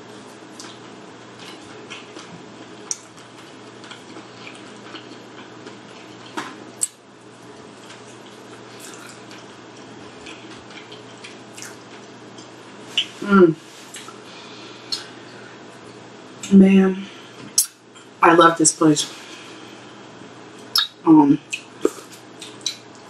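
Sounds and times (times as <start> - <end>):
chewing and lip smacking: 0.5 - 13.2, 13.9 - 14.2, 14.8 - 15.2, 20.6 - 23.0
sharp mouth clicks: 14.9 - 15.1, 20.6 - 22.9.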